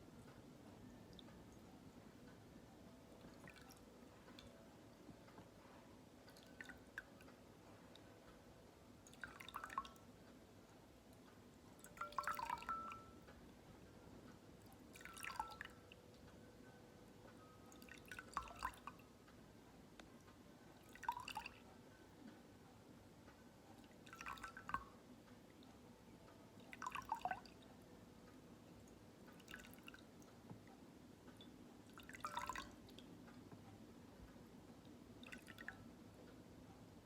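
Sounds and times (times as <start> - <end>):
water dripping and trickling: 3.1 - 8.2, 8.9 - 10.2, 11.2 - 13.3, 14.6 - 16.1, 17.7 - 19.1, 20.7 - 21.7, 23.8 - 25.0, 26.6 - 27.8, 28.8 - 30.4, 31.4 - 33.2, 35.1 - 35.8.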